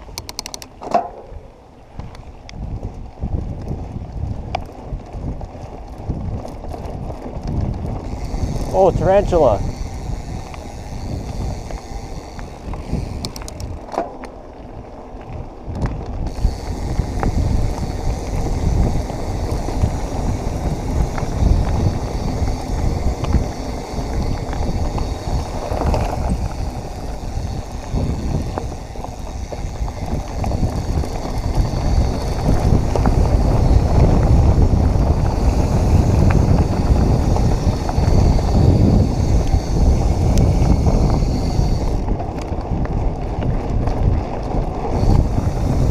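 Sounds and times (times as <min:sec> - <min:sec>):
bike tyres crunching on stones: 0:00.0 - 0:45.9
wind buffeting microphone: 0:00.0 - 0:45.9.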